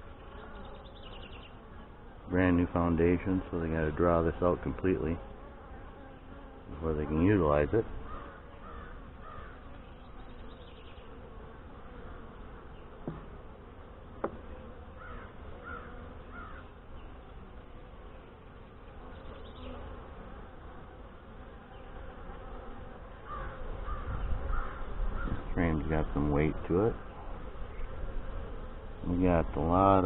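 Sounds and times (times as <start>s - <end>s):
honey bees buzzing: 0.0s - 30.0s
distant crow cawing: 8.0s - 9.7s, 15.0s - 16.7s, 23.2s - 25.4s.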